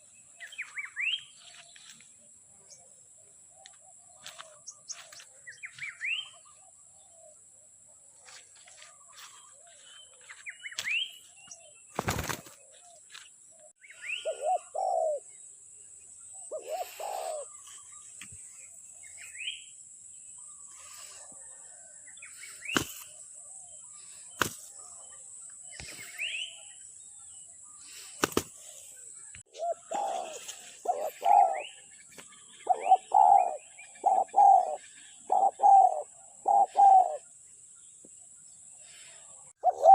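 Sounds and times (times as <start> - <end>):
small birds chirping: 0.0 - 39.9
doves cooing: 13.6 - 15.3, 16.4 - 18.0, 27.7 - 37.3, 39.0 - 39.9.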